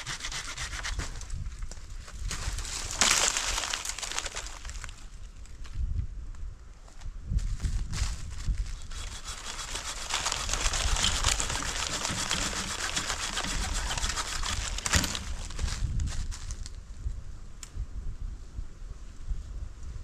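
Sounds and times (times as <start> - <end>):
dense crinkling and crackling: 1.7 - 5.2, 8.1 - 16.8.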